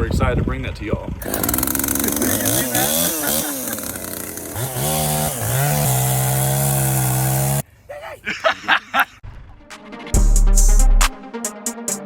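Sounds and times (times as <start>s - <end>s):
chainsaw revving: 1.2s - 7.6s.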